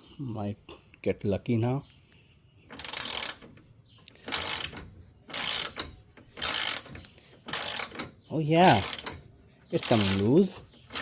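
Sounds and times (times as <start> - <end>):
ratchet wrench clicking: 2.7 - 3.6, 4.2 - 9.2, 9.8 - 11.0.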